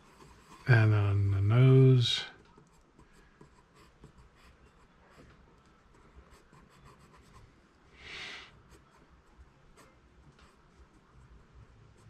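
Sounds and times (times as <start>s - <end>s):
pencil scratching on paper: 0.0s - 0.8s, 2.6s - 7.4s.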